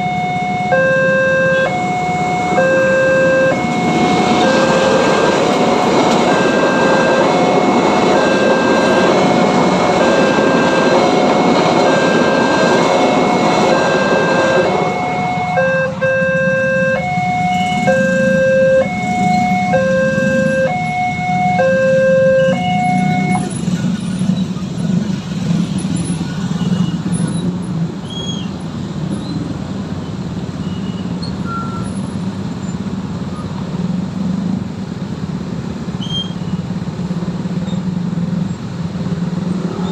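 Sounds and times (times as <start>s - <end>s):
two-tone level crossing alarm: 0.0s - 23.6s
passing train rumbling: 0.0s - 36.0s, 36.6s - 39.9s
road vehicle engines idling: 0.0s - 39.9s.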